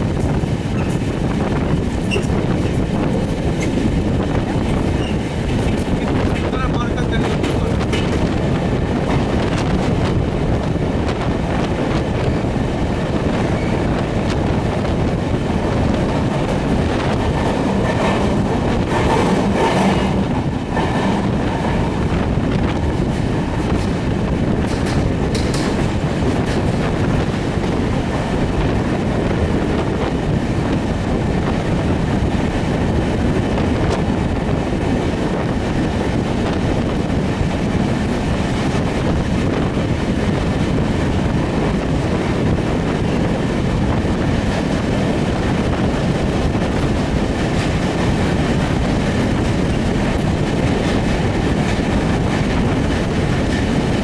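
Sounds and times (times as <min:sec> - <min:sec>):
train wheels rumbling in tunnel: 0:00.0 - 0:54.0.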